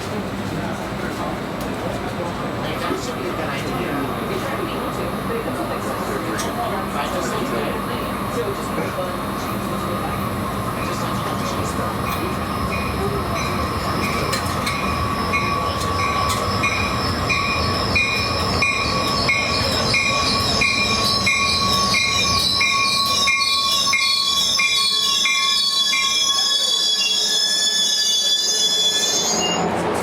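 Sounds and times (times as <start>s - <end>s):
train rumbling on rails: 0.0s - 30.0s
high wheel squeal: 12.1s - 29.8s.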